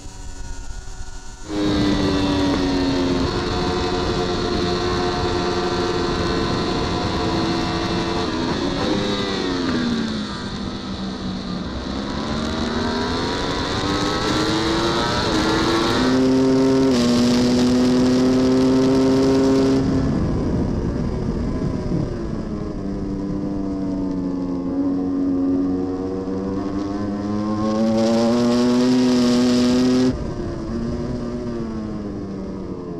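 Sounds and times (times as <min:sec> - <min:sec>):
racing motorcycle engine revving: 0:00.0 - 0:32.9.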